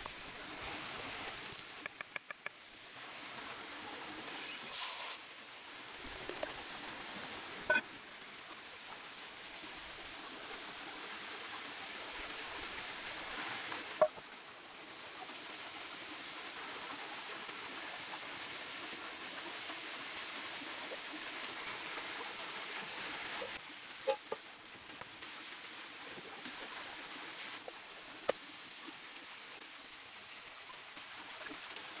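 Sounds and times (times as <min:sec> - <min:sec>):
campfire hissing: 0:04.6 - 0:07.6.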